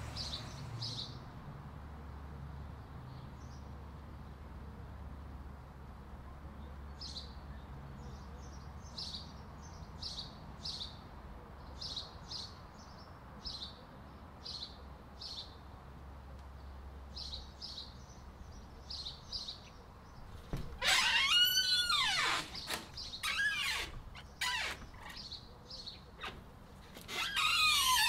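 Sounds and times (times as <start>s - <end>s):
small bird chirping: 17.2s - 28.0s
loud squealing: 20.8s - 25.3s, 27.1s - 28.0s.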